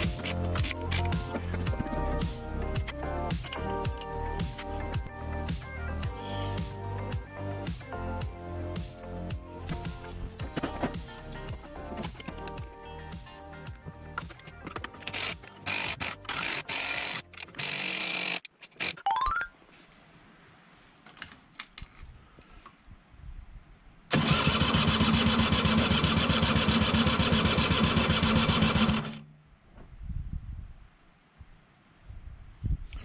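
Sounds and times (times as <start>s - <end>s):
background music: 0.0s - 17.8s
two-stroke engine cranking: 14.2s - 19.0s, 24.1s - 29.2s.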